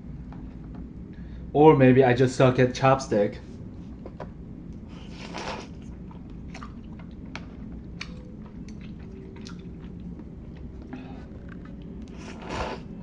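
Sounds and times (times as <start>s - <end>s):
chewing and slurping noodles: 4.9s - 13.0s.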